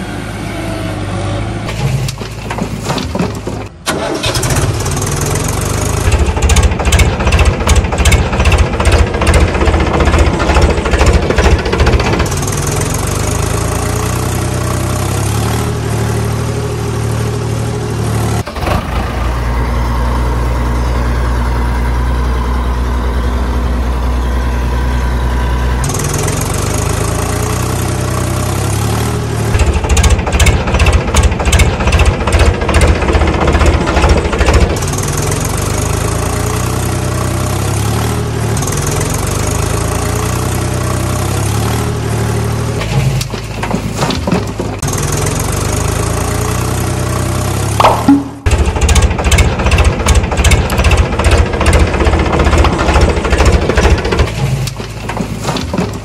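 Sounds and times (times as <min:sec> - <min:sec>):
heavy machinery engine running: 0:00.0 - 0:56.0.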